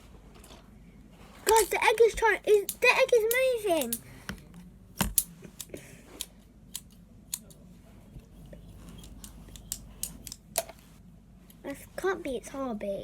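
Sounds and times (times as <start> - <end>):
plastic toy clicking and tapping: 1.5 - 4.4, 5.0 - 7.6.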